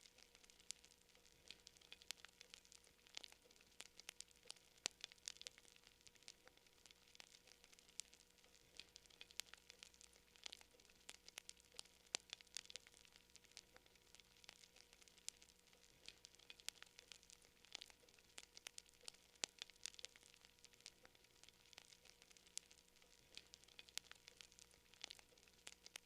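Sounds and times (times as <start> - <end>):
campfire crackling: 0.0 - 26.0.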